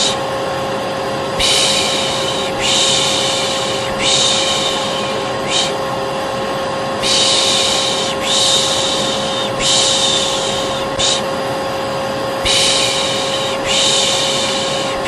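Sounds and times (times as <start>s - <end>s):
hair dryer running: 0.0s - 15.0s
person shushing: 1.4s - 5.9s, 7.0s - 11.4s, 12.4s - 15.0s.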